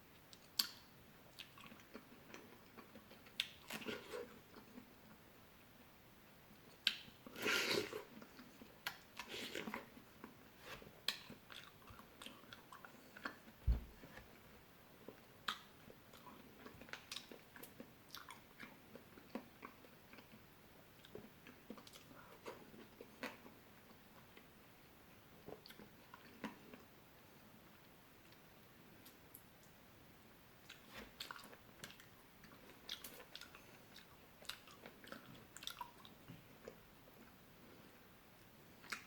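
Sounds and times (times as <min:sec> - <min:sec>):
low thump: 0:13.6 - 0:14.1.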